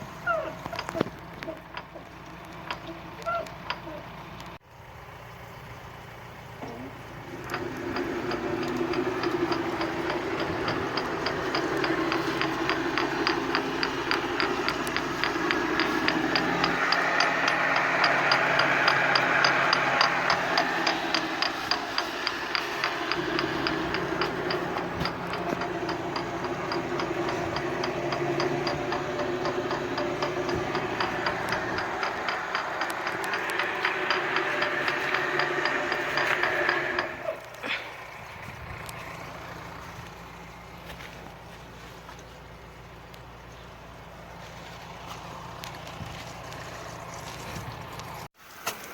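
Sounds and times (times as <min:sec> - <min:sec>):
irrigator mechanism humming: 0:00.0 - 0:04.6, 0:05.9 - 0:48.3
regular mechanical clicking: 0:00.0 - 0:04.6, 0:06.6 - 0:40.2.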